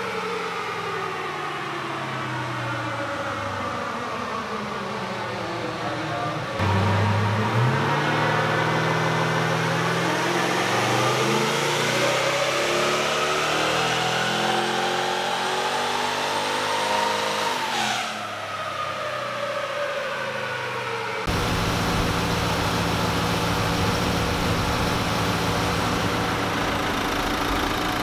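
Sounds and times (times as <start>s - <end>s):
turbo engine revving at full throttle: 6.6s - 17.8s, 21.3s - 28.0s.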